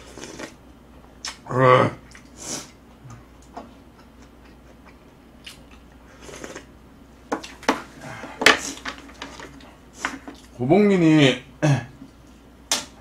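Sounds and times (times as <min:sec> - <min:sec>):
person chewing food: 0:03.0 - 0:06.7.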